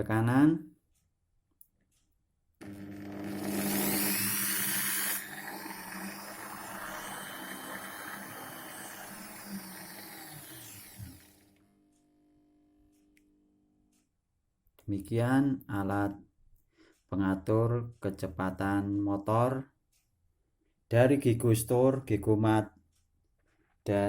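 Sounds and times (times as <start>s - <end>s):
small electric motor running: 2.6s - 11.5s.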